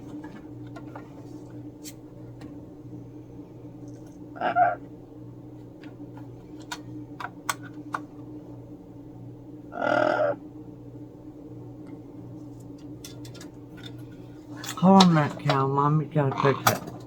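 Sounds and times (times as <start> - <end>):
steady low hum: 0.0 - 17.0
parrot squawking: 4.4 - 4.8, 9.7 - 10.4.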